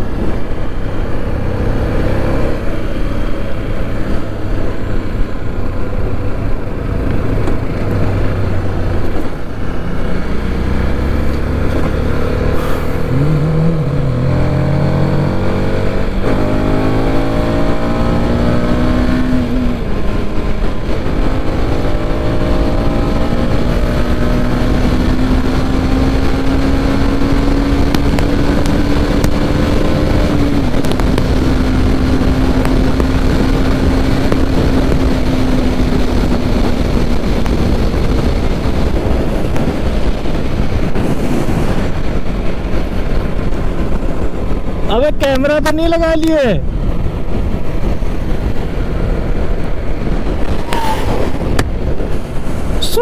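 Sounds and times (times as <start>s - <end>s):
motorcycle engine accelerating: 0.0s - 53.0s
wind rush: 0.0s - 53.0s.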